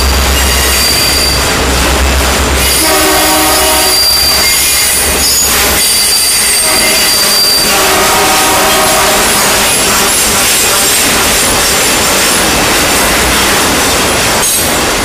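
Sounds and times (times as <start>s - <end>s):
train wheels squealing on rails: 0.0s - 1.6s, 2.6s - 12.4s, 14.4s - 14.8s
freight train rumble and clatter: 0.0s - 15.0s.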